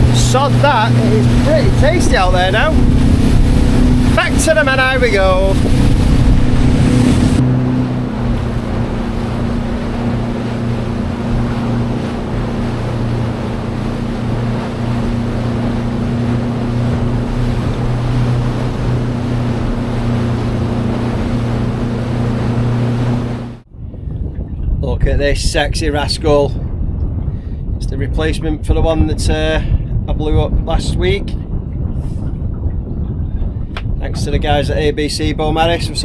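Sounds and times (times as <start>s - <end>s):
outboard motor running: 0.0s - 23.6s
choppy sea rushing: 0.0s - 36.0s
wind on microphone: 0.0s - 36.0s.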